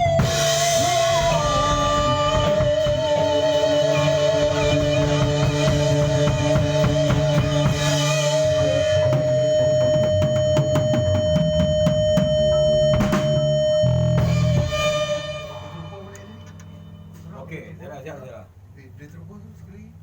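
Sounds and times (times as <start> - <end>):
drum kit beat: 0.0 - 17.3
band playing: 0.0 - 17.7
long wavering held note: 11.8 - 17.3.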